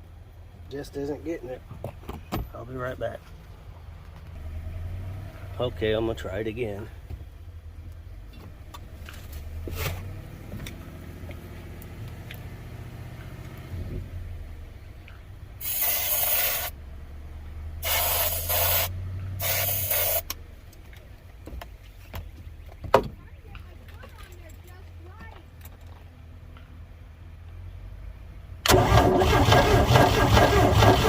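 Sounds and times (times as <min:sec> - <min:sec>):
aerosol spray bursts: 0:15.6 - 0:16.7, 0:17.8 - 0:20.3
boat engine cranking by starter: 0:28.6 - 0:31.0.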